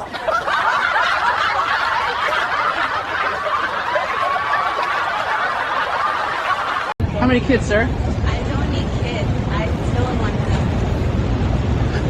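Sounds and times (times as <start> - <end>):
people laughing: 0.0 - 7.0.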